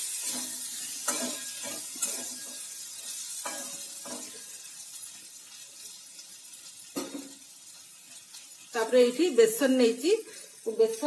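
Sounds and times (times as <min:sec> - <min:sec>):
spatula scraping a pan: 0:00.0 - 0:05.0
food sizzling in a pan: 0:00.0 - 0:11.0.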